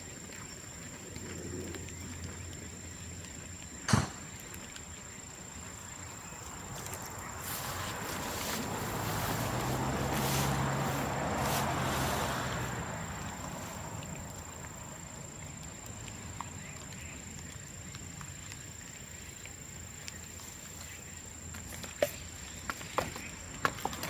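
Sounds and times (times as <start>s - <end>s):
rushing noise with low hum: 0.0s - 17.2s
fire crackles: 0.0s - 21.7s
bonfire hissing: 1.0s - 21.5s.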